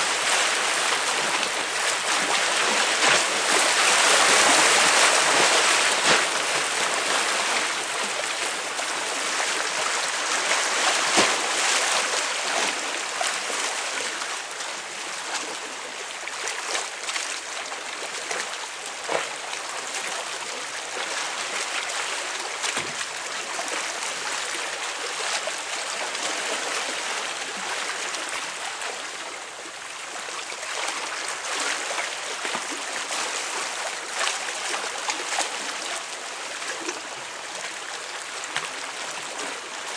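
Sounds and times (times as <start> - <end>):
waves splashing on concrete: 0.0 - 14.0.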